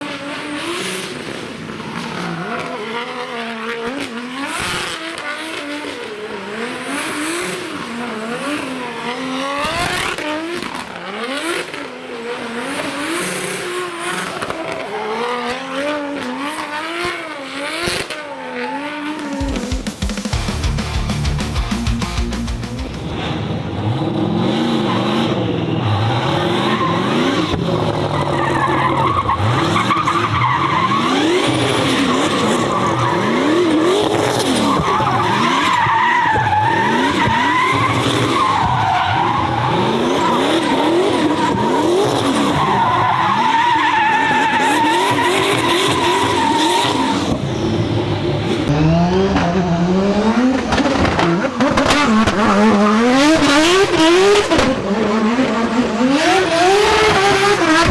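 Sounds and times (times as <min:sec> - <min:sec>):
car engine revving hard: 0:20.5 - 0:57.9.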